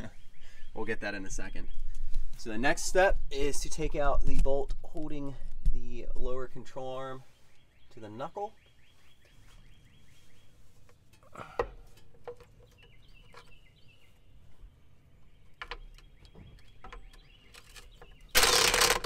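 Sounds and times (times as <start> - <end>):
faint bird trills and chirps: 6.8 - 18.6.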